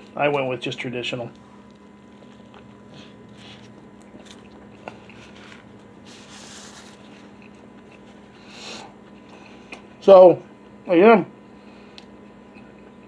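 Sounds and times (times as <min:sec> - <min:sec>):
person chewing food: 0:01.3 - 0:10.0, 0:11.8 - 0:13.0
napkin rustling: 0:05.0 - 0:08.3.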